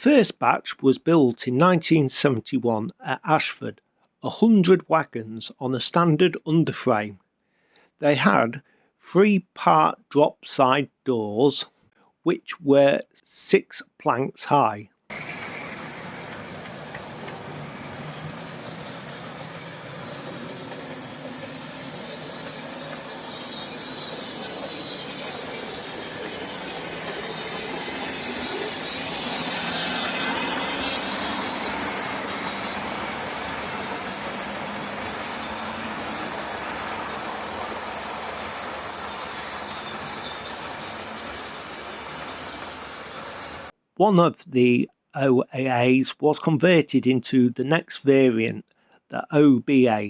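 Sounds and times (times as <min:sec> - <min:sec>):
model train running on track: 0:15.1 - 0:43.7.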